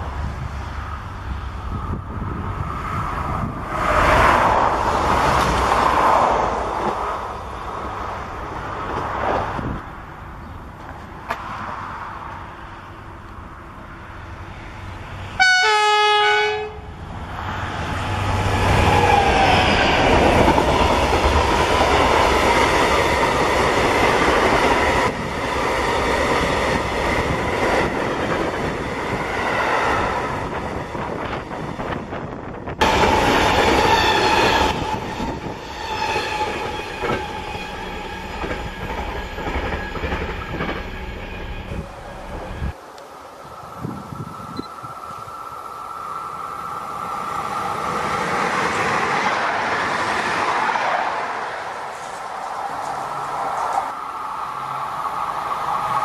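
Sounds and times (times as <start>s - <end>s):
locomotive horn: 15.4s - 16.9s
freight train wheels clattering: 32.8s - 42.8s.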